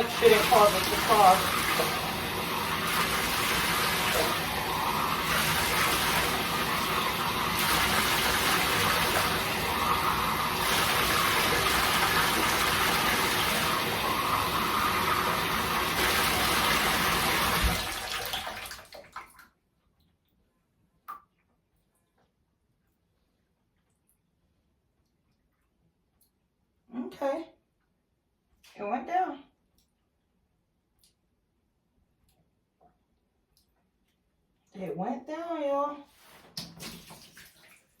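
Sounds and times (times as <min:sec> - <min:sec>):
water running into bathtub: 0:00.0 - 0:20.3, 0:36.1 - 0:38.0.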